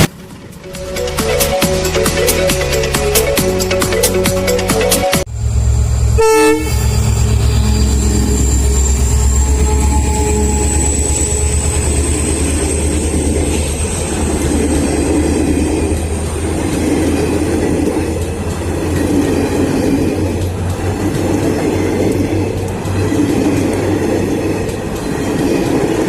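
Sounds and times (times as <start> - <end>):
train coaches rumbling on track: 0.0 - 26.0
thin high whine: 5.3 - 15.2.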